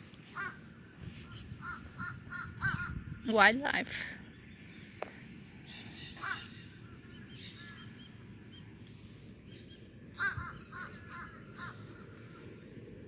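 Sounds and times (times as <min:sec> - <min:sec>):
crows cawing: 0:00.3 - 0:00.6, 0:01.6 - 0:03.0, 0:06.1 - 0:06.6, 0:10.1 - 0:12.5.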